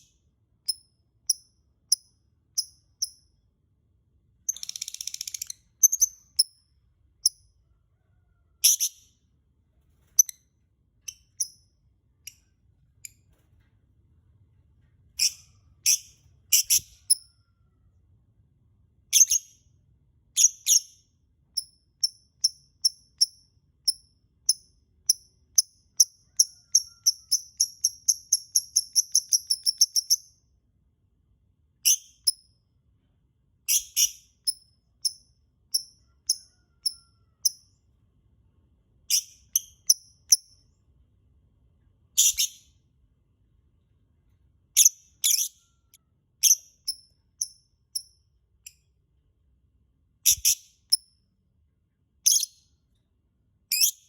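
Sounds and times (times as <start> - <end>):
lovebird chirping: 4.5 - 7.5, 8.6 - 9.2, 15.2 - 17.4, 19.1 - 19.6, 20.4 - 21.0, 21.6 - 30.4, 33.7 - 37.7, 39.1 - 40.7, 42.1 - 42.8, 44.8 - 48.8, 50.2 - 51.1, 52.2 - 52.7, 53.7 - 54.0.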